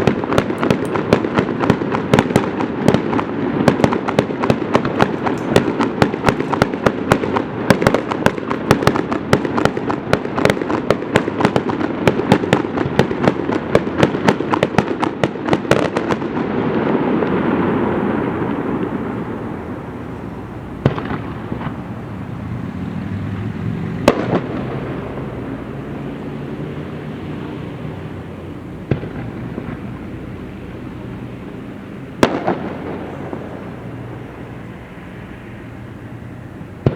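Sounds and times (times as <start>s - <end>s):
fireworks bangs and crackles: 0.0s - 36.9s
rolling rumble: 17.0s - 36.9s.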